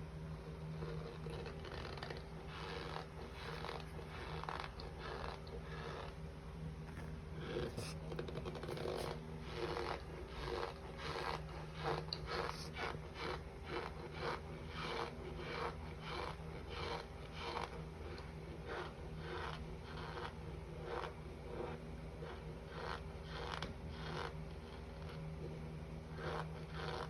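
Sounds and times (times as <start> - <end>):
squeaky crunchy chewing: 26.2 - 27.0.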